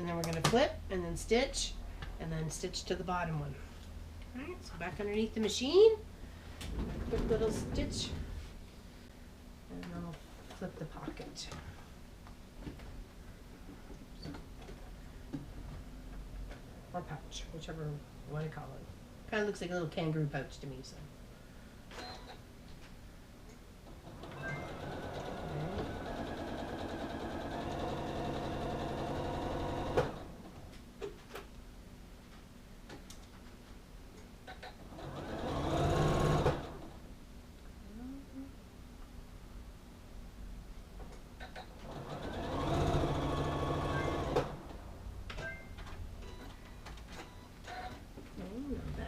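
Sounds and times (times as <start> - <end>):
sewing machine stitching: 24.1 - 30.3, 34.8 - 36.9, 41.8 - 44.7.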